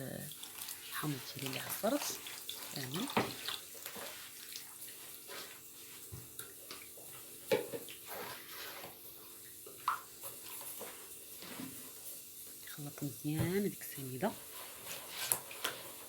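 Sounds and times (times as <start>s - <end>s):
liquid pouring into a bowl: 0.0s - 12.6s.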